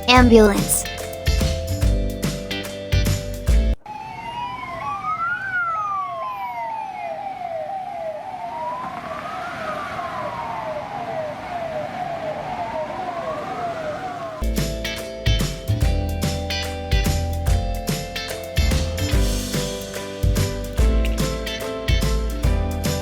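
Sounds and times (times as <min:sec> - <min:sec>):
music: 0:00.0 - 0:03.8, 0:14.4 - 0:23.0
ambulance siren: 0:03.8 - 0:14.4.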